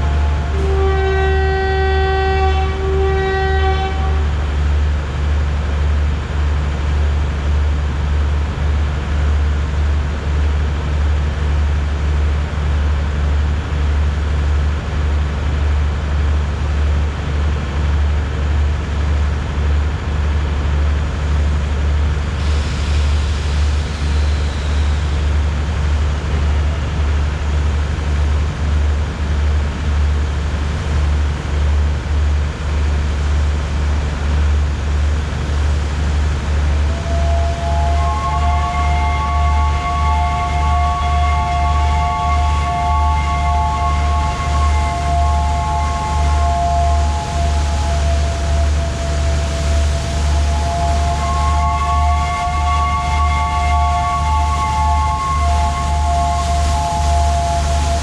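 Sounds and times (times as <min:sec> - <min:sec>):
steady low rumble: 0:00.0 - 0:01.2, 0:02.3 - 0:58.0
locomotive horn blasts: 0:00.0 - 0:04.6, 0:23.2 - 0:25.2, 0:36.6 - 0:58.0
hiss: 0:22.3 - 0:25.7, 0:44.5 - 0:52.0, 0:54.8 - 0:58.0.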